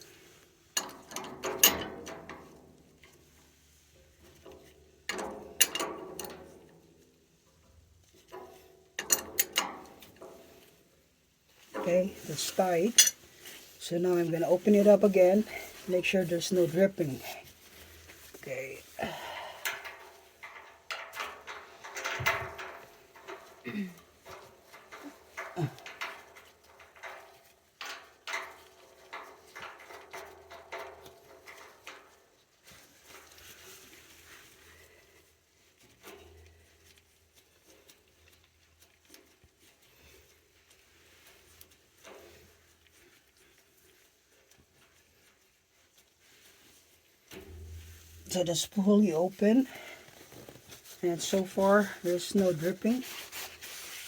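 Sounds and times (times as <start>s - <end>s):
metal hand tools clinking: 11.8s - 13.2s
wrench clanking on metal: 12.9s - 13.2s.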